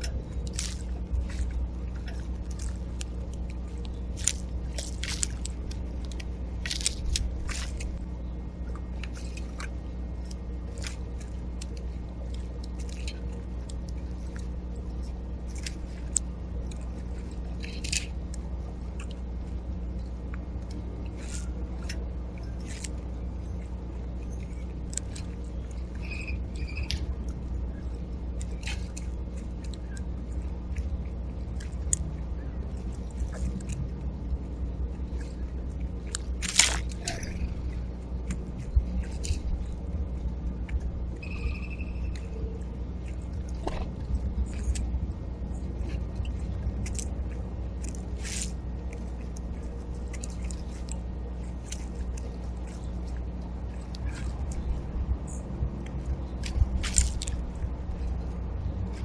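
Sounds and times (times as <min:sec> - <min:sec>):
seeds cracking and crunching: 0:00.0 - 0:08.0, 0:15.4 - 0:19.2, 0:36.0 - 0:39.8, 0:45.8 - 0:53.2, 0:55.9 - 0:58.3
low hum: 0:00.0 - 0:59.0.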